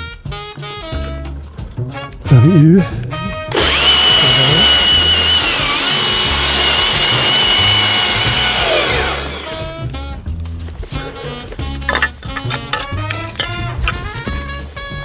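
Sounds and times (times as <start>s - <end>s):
background music with steady beat: 0.0s - 15.0s
chainsaw motor whine: 3.5s - 9.8s.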